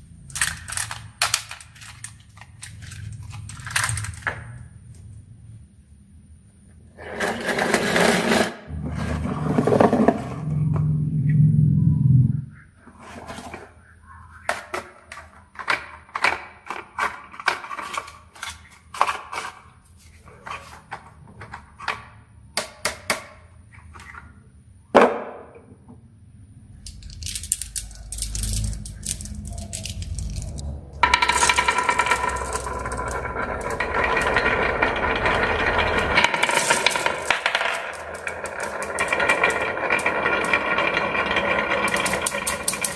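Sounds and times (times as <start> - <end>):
low rumble: 8.7 - 12.8, 26.3 - 36.2
marbles clattering down wooden run: 26.9 - 42.9.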